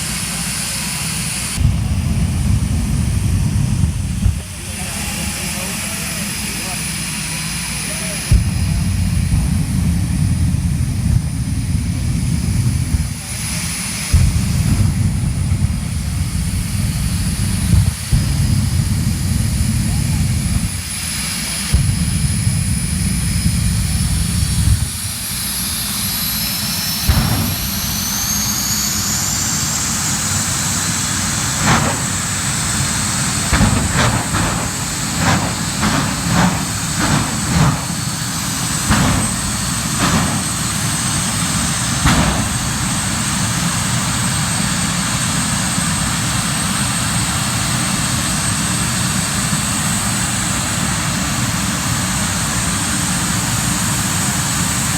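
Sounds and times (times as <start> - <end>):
turbine engine whine: 0.0 - 54.9
sharp bangs: 1.5 - 24.9, 25.9 - 45.1.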